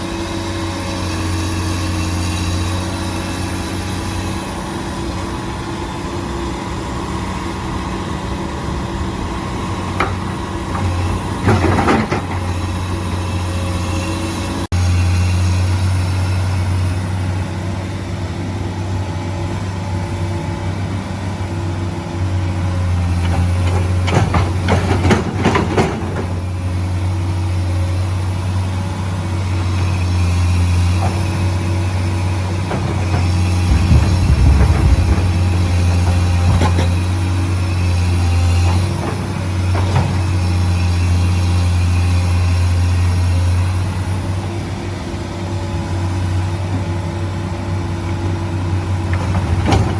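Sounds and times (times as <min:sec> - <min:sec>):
heavy engine running: 0:00.0 - 0:49.9
heavy low thump: 0:33.5 - 0:36.8.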